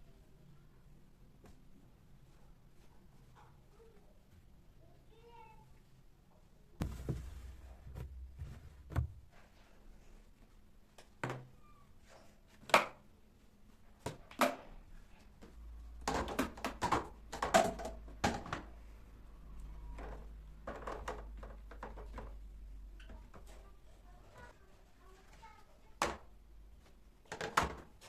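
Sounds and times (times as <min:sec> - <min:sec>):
objects knocking and clattering: 0:06.8 - 0:09.2, 0:16.0 - 0:18.7, 0:19.9 - 0:23.6, 0:27.2 - 0:28.0.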